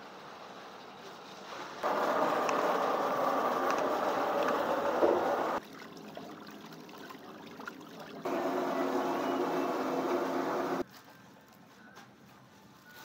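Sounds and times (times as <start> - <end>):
mechanical running noise: 1.8 - 5.6, 8.3 - 10.8.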